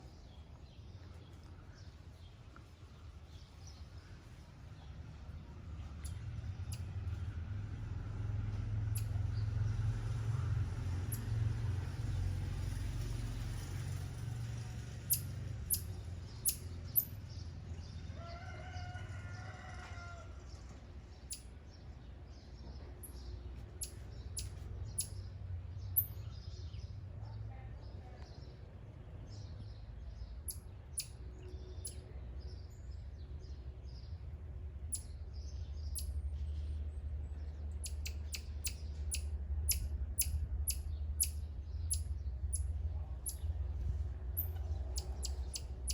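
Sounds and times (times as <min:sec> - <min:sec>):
steady low rumble: 0:20.8 - 0:45.9
high bird chirps: 0:44.4 - 0:45.9.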